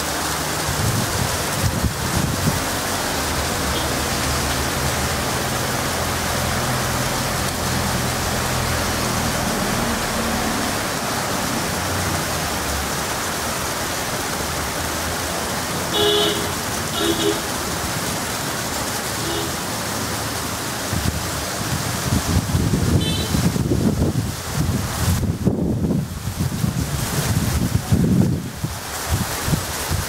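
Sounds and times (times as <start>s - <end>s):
heavy rain on road: 0.0s - 30.0s
passing vehicles on wet road: 0.0s - 30.0s
vehicle horn: 3.7s - 4.1s, 15.9s - 17.5s, 19.2s - 19.6s, 23.0s - 23.5s.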